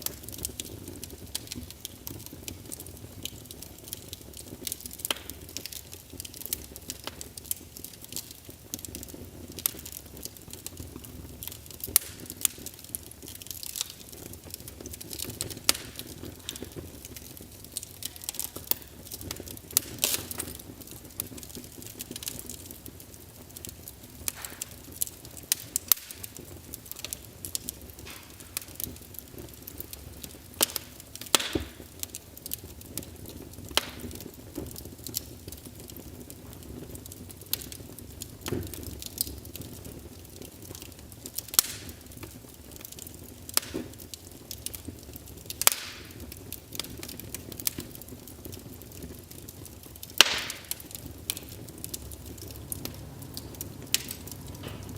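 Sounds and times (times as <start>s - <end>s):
low fire rumble: 0.0s - 54.9s
wood fire crackling and popping: 0.0s - 54.9s.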